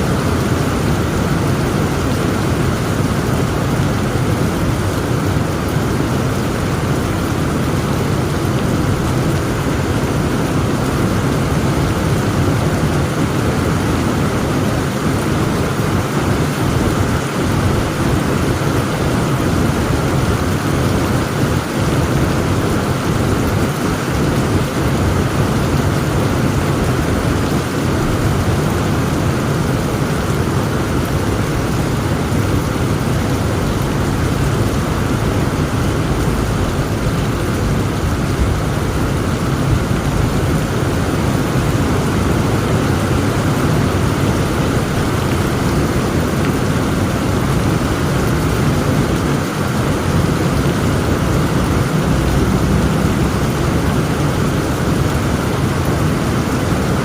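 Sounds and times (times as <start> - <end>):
heavy rain: 0.0 - 57.0
thunder rumbling: 17.4 - 56.3.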